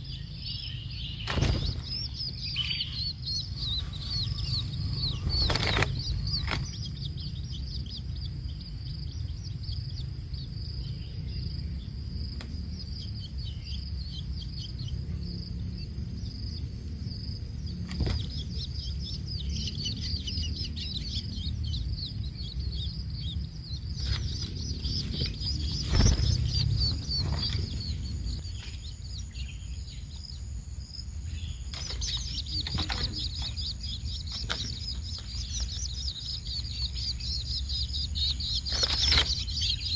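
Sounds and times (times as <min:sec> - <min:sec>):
young birds chirping: 0:00.0 - 0:39.9.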